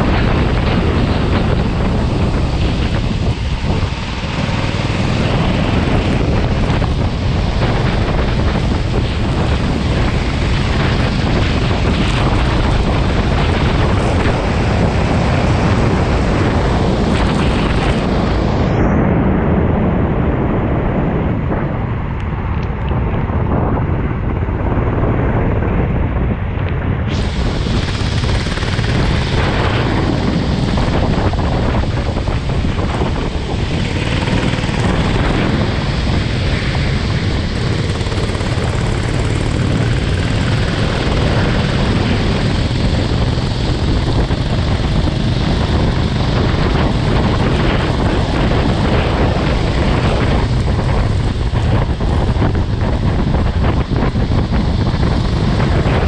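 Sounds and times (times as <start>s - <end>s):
go-kart engine running: 0.0s - 18.7s, 27.1s - 56.0s
wind buffeting microphone: 0.0s - 56.0s.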